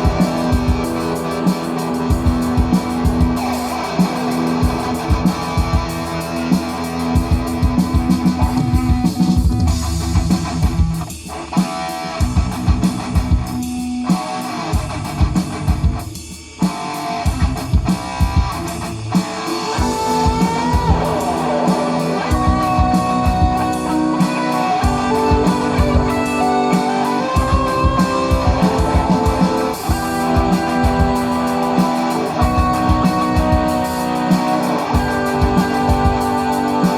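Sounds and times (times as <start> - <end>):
bass guitar: 0.0 - 11.3, 12.2 - 13.9, 14.8 - 16.1, 17.3 - 36.9
electric guitar lead: 0.0 - 16.0, 16.6 - 36.9
steady drum beat: 0.0 - 36.9.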